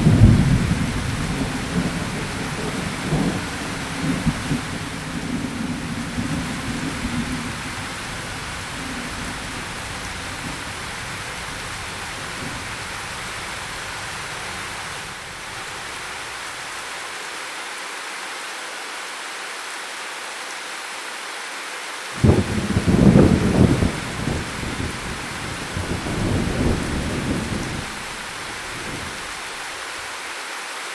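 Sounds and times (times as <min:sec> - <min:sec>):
low thunder rumble: 0:00.0 - 0:16.4, 0:22.2 - 0:30.0
heavy rain: 0:00.0 - 0:18.6, 0:20.8 - 0:30.9.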